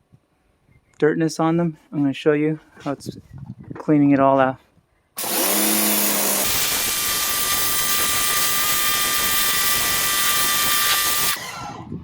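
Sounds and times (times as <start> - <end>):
high-pressure water jet hissing: 5.2 - 11.4
pressure washer motor whine: 5.2 - 12.0.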